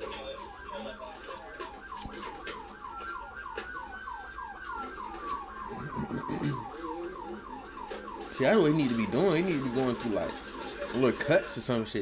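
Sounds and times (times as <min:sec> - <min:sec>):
police siren yelping: 0:00.4 - 0:10.6
slower wailing siren tone: 0:00.5 - 0:09.6.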